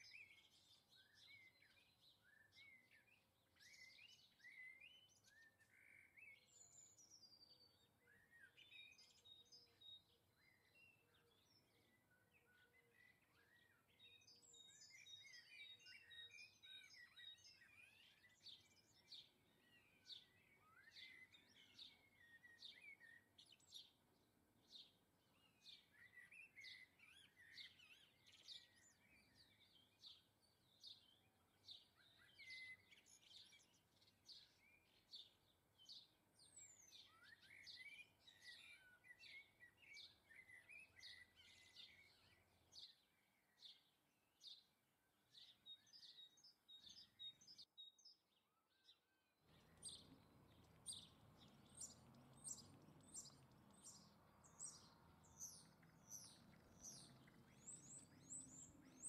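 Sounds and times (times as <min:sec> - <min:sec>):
small songbirds chirping: 0:00.0 - 0:59.0
faint steady background noise: 0:49.4 - 0:59.0.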